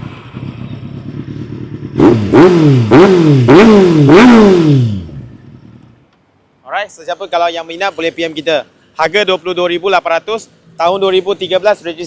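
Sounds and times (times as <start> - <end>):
motorcycle engine idling and revving: 0.0 - 6.5.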